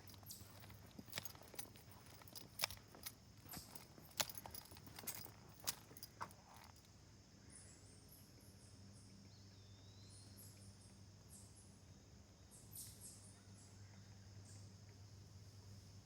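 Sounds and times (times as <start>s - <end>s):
soft crackles of steps: 0.0s - 6.9s
insect trill: 0.0s - 16.0s.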